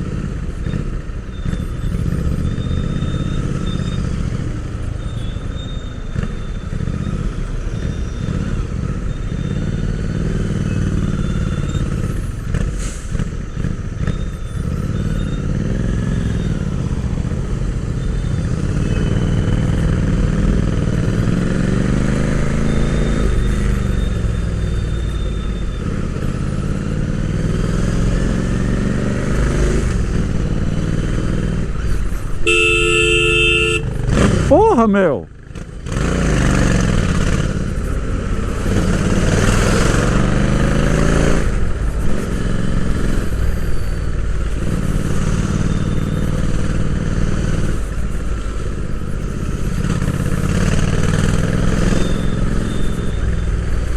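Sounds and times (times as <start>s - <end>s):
motorcycle engine running: 31.7s - 40.6s
vehicle horn: 32.4s - 34.0s.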